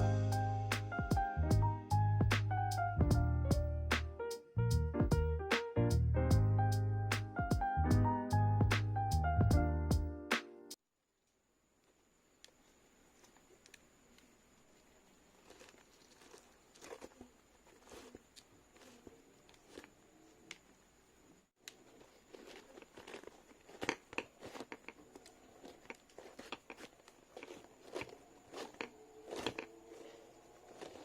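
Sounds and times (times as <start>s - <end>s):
rustling and crinkling of materials: 12.5s - 20.8s, 21.6s - 31.0s.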